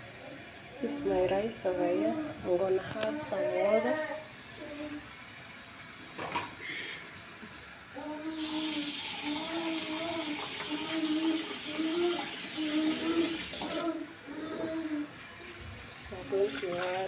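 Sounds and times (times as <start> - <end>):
water pouring into a pot: 8.3 - 14.1, 15.3 - 17.0.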